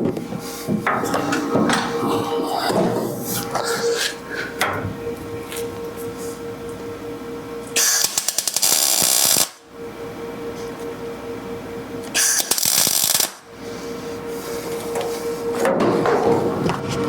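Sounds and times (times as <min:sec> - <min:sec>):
steady hum: 0:00.0 - 0:17.0
crackling welding bursts: 0:07.8 - 0:09.6, 0:12.2 - 0:13.4.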